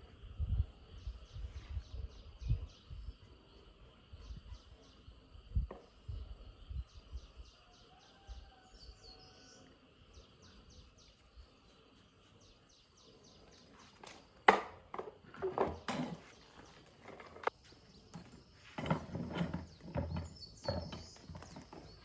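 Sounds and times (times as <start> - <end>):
insects chirping: 0.1 - 22.0
hard objects knocking and clattering: 14.0 - 17.5, 18.1 - 22.0.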